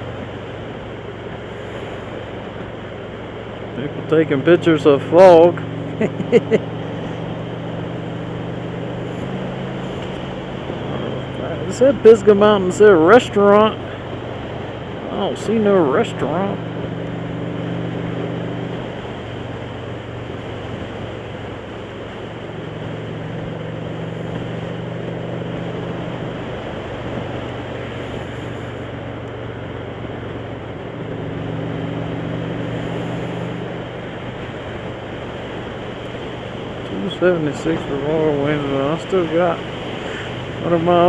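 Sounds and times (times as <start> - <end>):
motorcycle engine running: 0.0 - 41.0
wind and road rush: 0.0 - 41.0.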